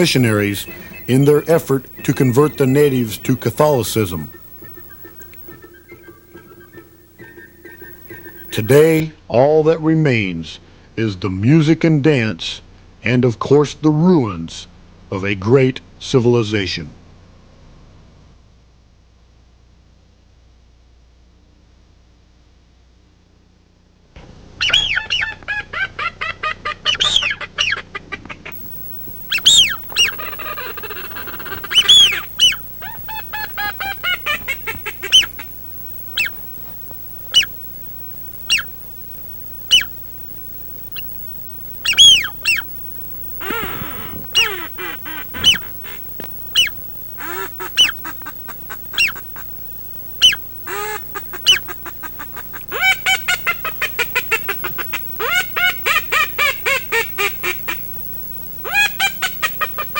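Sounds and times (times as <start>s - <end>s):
ducks quacking: 29.2s - 36.4s, 43.4s - 49.4s, 50.2s - 57.9s.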